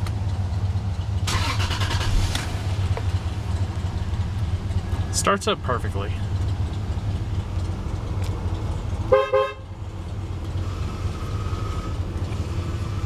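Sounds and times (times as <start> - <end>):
car engine idling: 0.0 - 13.0
car horn beep: 9.1 - 9.7.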